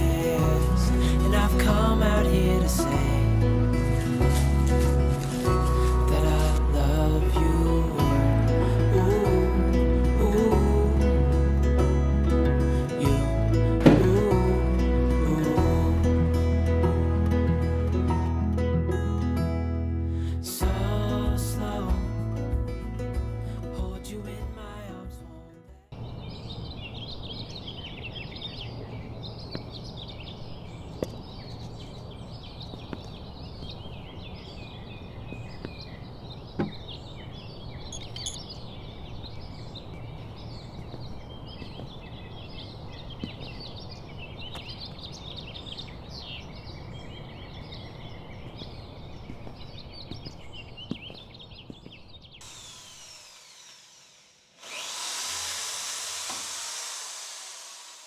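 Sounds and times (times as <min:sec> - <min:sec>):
small birds chirping: 0:25.9 - 0:55.4.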